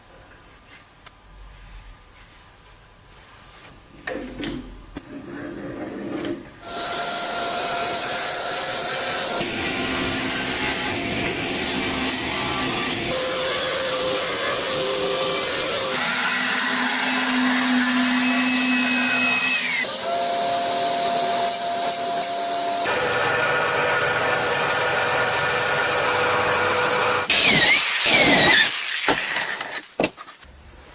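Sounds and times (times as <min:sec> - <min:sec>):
electric power tool whining: 0:06.6 - 0:29.9.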